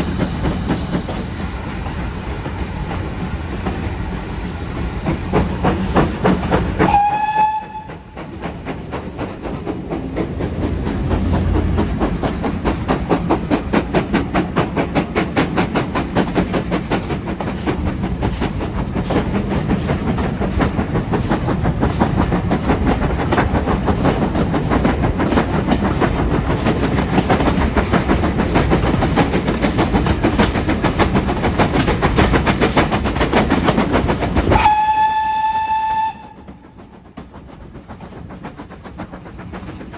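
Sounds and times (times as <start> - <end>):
steam locomotive exhaust beats: 0.0 - 39.9
steam whistle: 6.8 - 8.2, 34.5 - 36.6.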